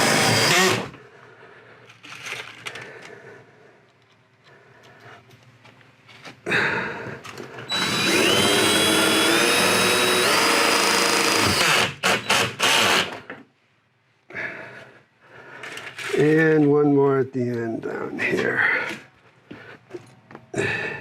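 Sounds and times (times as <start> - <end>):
cordless drill driving screw: 0.0 - 0.9, 7.7 - 13.2.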